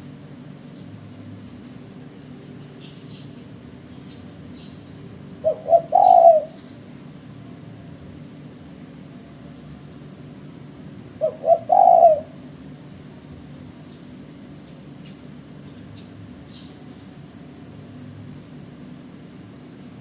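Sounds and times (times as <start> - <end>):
steady low hum: 0.0 - 20.0
small birds chirping: 0.3 - 1.3, 2.5 - 7.0, 11.2 - 12.3, 12.9 - 17.5, 18.2 - 19.4
dove cooing: 5.3 - 6.7, 11.1 - 12.6.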